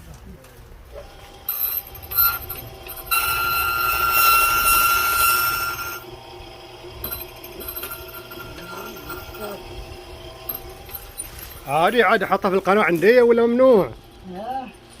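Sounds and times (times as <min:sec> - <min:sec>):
key-cutting machine whine: 0:01.0 - 0:12.2.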